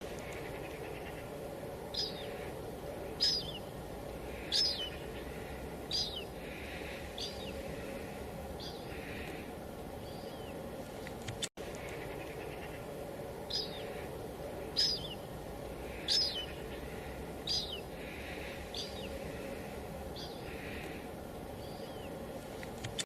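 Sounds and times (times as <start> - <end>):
light drizzle hiss: 0.0 - 23.0
bird high downward chirps: 1.9 - 3.8, 4.4 - 6.4, 11.9 - 14.1, 14.7 - 15.3, 15.9 - 19.2.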